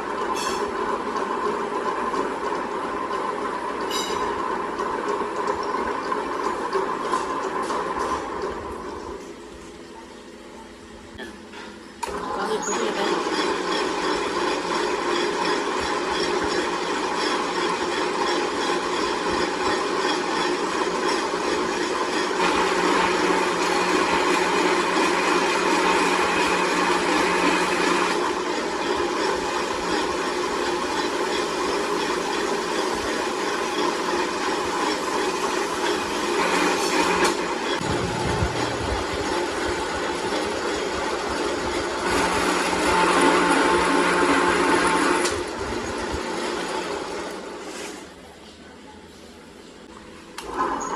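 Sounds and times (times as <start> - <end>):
workshop machinery humming: 0.0 - 50.9.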